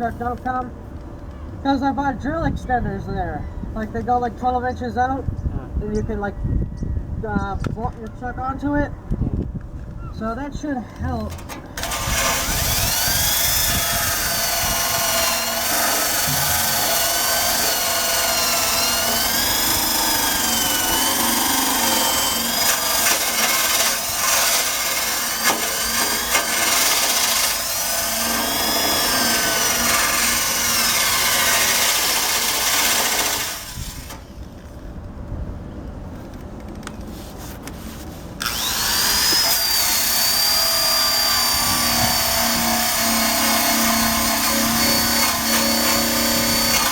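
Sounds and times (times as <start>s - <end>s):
drill wire brush scrubbing metal: 11.2s - 34.2s, 38.4s - 46.9s.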